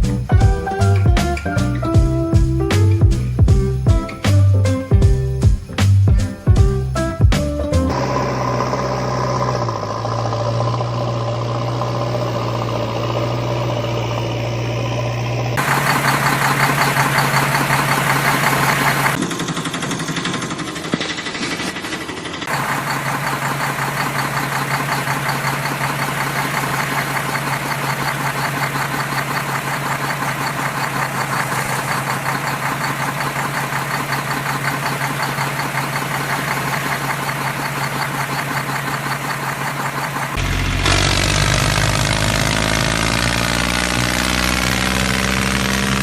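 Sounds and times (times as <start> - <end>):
engine chugging: 0.0 - 46.0
deeper engine rising in pitch: 7.6 - 20.6, 22.5 - 46.0.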